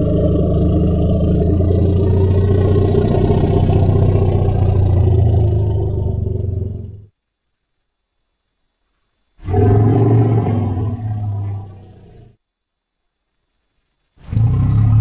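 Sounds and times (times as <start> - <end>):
deep rumbling growl: 0.0 - 7.1, 9.4 - 12.4, 14.2 - 15.0.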